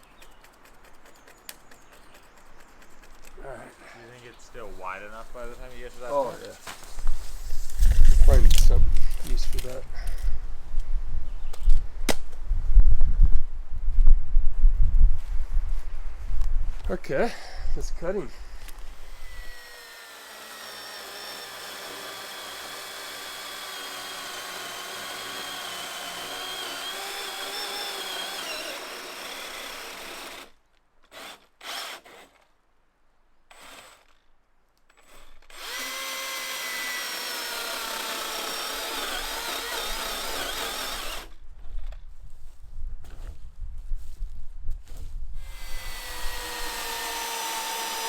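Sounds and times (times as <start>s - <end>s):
electric power tool whining: 18.6s - 30.5s, 31.1s - 32.4s, 33.5s - 34.2s, 35.0s - 41.4s, 45.4s - 48.0s.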